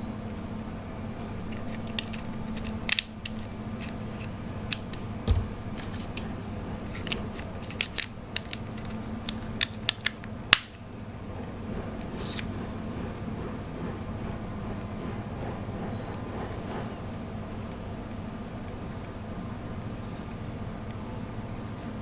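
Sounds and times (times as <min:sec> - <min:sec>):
steady low hum: 0:00.0 - 0:22.0
packaging clicks and taps: 0:06.9 - 0:10.7.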